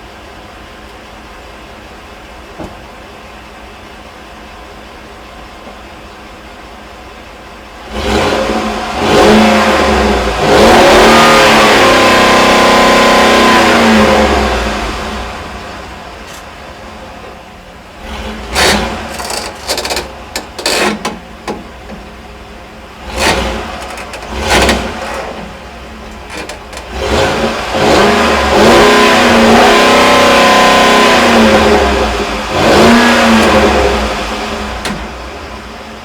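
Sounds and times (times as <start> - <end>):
car engine revving: 7.8 - 17.1, 17.9 - 21.5, 22.7 - 36.0.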